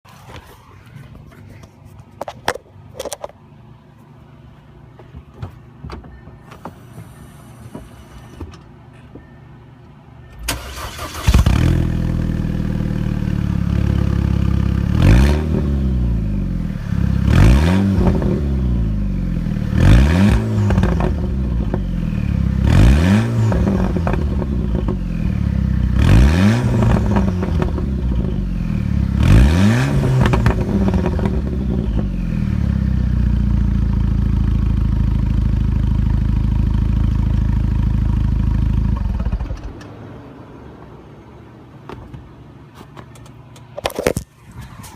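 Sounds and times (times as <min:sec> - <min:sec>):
car engine revving: 0:10.5 - 0:32.9.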